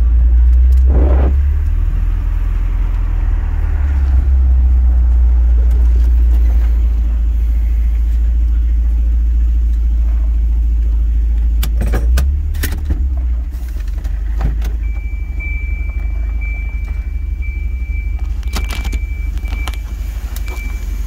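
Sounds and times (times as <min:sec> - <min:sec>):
car engine idling roughly: 0:00.0 - 0:21.0
high warning tone: 0:00.8 - 0:05.1, 0:14.8 - 0:21.0.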